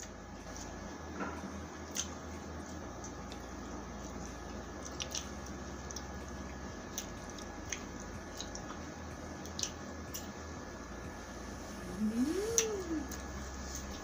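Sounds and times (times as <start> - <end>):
chewing fried chicken: 0.0 - 10.8
wet mouth clicks and smacks: 1.9 - 2.2, 4.8 - 5.3, 9.4 - 10.3.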